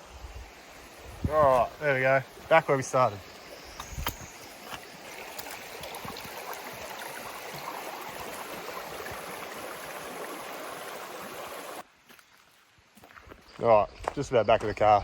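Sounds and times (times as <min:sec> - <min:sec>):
creek water running: 0:00.0 - 0:11.9.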